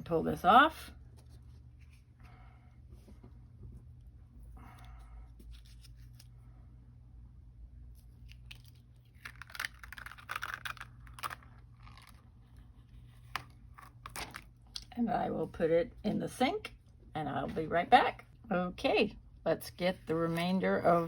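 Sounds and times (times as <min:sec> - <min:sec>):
crinkling tearing handling noise: 0:08.2 - 0:12.3, 0:13.2 - 0:14.9.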